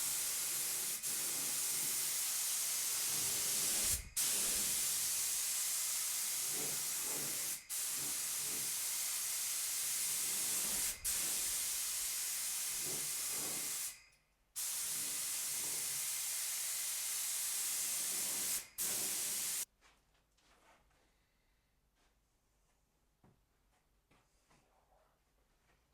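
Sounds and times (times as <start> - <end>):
paint spray gun hissing: 0.0 - 14.0, 14.6 - 19.7.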